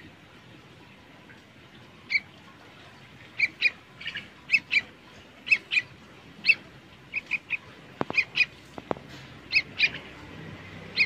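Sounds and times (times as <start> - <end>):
bird giving sharp calls: 9.5 - 10.1.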